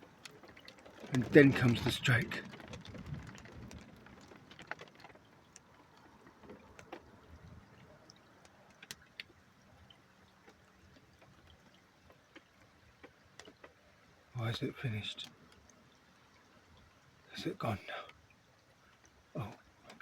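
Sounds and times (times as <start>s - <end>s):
faint hiss: 17.2s - 18.3s.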